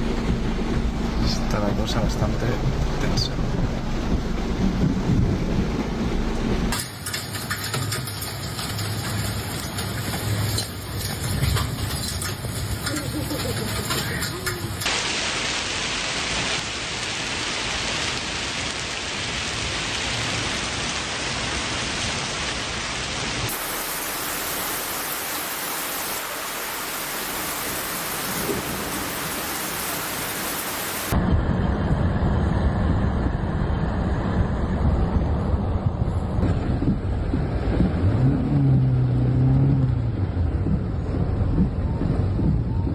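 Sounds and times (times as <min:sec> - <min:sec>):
heavy low rumbling: 0:00.0 - 0:06.7, 0:23.5 - 0:42.9
heavy rain pouring: 0:00.0 - 0:31.2.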